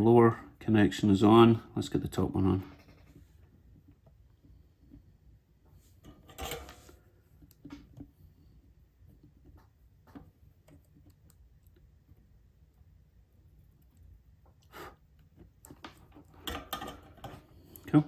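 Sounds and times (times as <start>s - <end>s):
low steady hum: 0.0s - 18.0s
small tools clicking and tapping: 15.6s - 17.9s.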